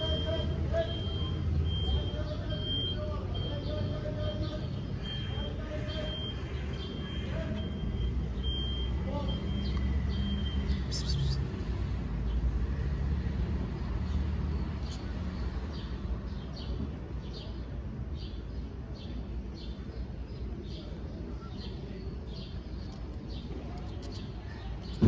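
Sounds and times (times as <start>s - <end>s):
small bird chirping: 4.2s - 11.7s, 14.1s - 16.0s, 20.7s - 25.0s.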